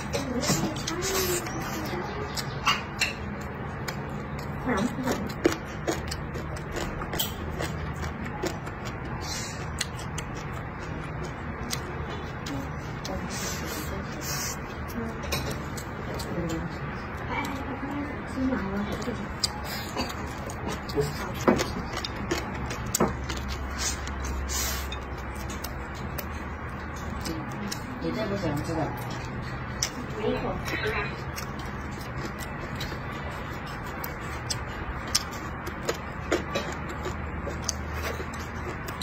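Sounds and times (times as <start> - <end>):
man chewing with lip smacks: 0.0 - 39.0.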